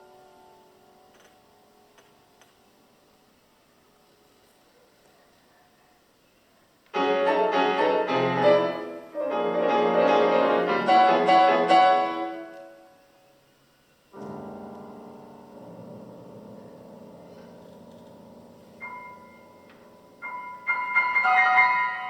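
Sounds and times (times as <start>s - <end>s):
piano chords: 7.0s - 13.0s, 14.1s - 22.0s.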